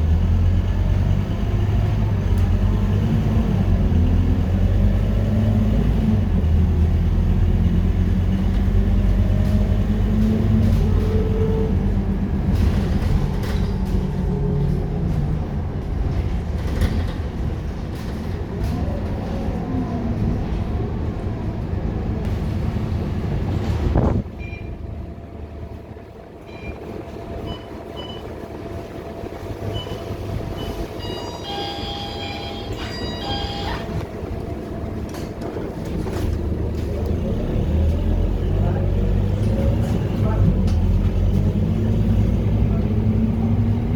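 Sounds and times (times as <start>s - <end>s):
bus engine running: 0.0s - 43.9s
short electronic beeps: 29.7s - 33.9s.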